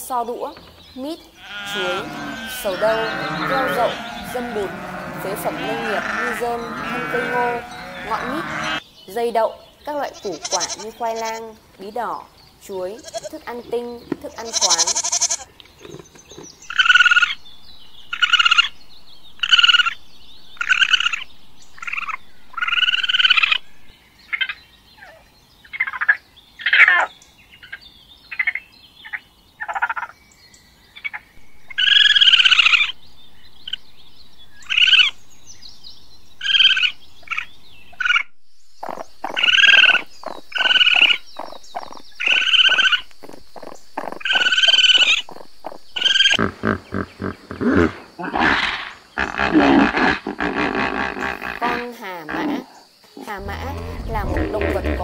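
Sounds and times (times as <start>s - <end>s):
raccoon calling: 0.9s - 8.8s, 10.1s - 11.4s, 12.8s - 16.0s, 16.6s - 17.4s, 18.1s - 18.8s, 19.4s - 20.0s, 20.6s - 27.1s, 31.7s - 33.0s, 34.6s - 35.2s, 38.8s - 55.0s.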